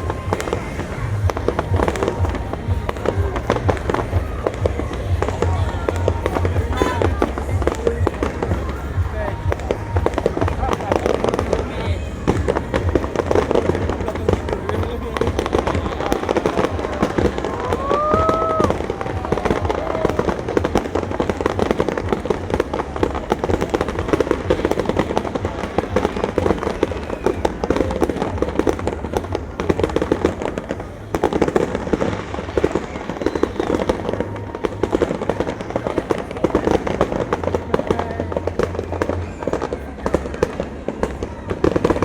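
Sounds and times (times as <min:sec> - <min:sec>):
rising firework whistle: 0:00.0 - 0:22.8, 0:31.3 - 0:36.9
fireworks bangs and crackling: 0:00.0 - 0:42.0.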